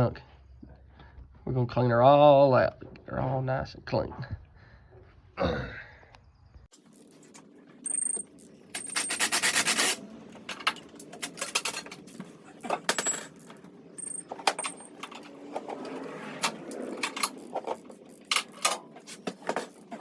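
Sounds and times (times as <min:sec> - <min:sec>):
hand tools clicking on metal: 0:12.7 - 0:15.2.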